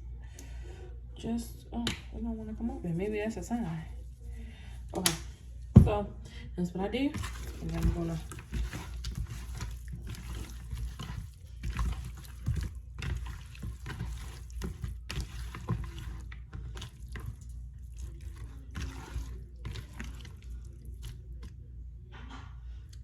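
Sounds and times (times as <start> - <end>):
raw chicken squishing in a bowl: 7.0 - 23.0.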